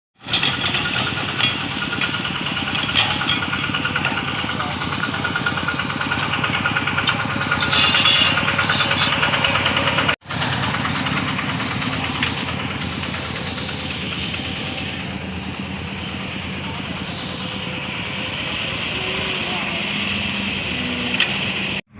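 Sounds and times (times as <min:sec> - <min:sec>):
high rattle: 0:00.2 - 0:19.3
diesel engine throbbing: 0:00.2 - 0:21.9.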